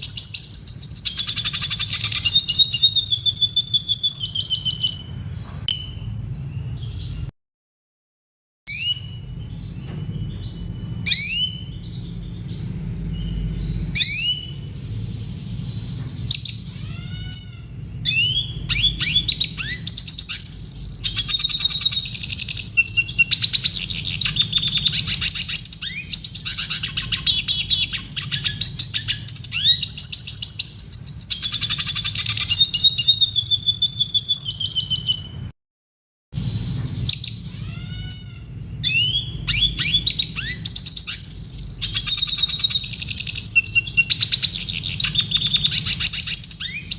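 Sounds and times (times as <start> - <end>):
bird singing whistles and trills: 0.0 - 7.3, 8.7 - 35.5, 36.6 - 46.9
low steady hum: 8.7 - 30.0.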